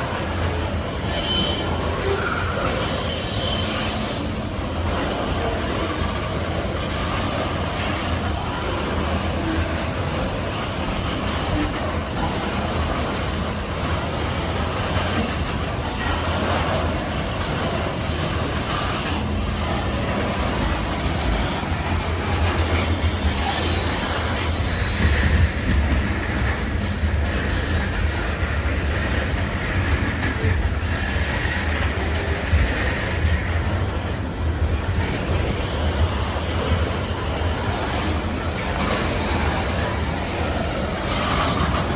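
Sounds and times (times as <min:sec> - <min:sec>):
train wheels rumbling on rail: 0:00.0 - 0:41.9
high wheel squeal: 0:01.0 - 0:06.4, 0:22.3 - 0:29.0, 0:38.6 - 0:40.3.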